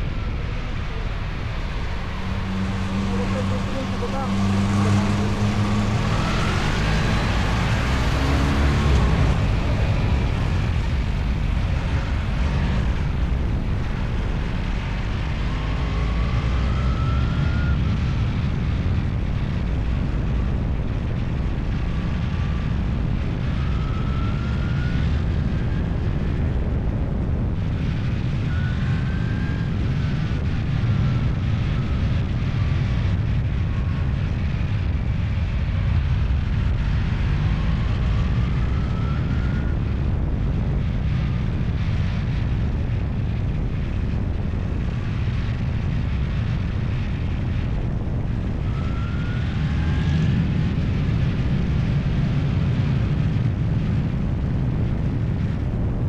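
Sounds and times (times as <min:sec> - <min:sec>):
motorcycle engine running: 0:00.0 - 0:15.3
rising engine whine: 0:00.0 - 0:56.0
wind and road noise: 0:00.0 - 0:56.0.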